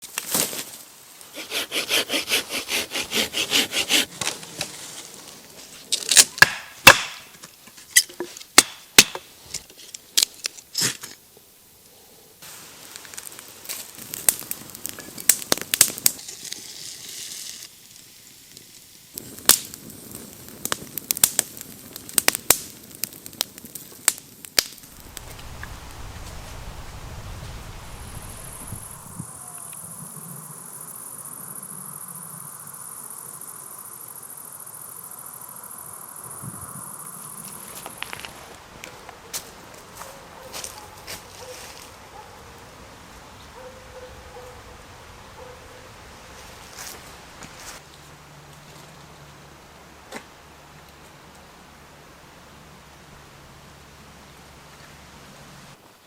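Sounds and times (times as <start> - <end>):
hand saw strokes: 1.3 - 4.8.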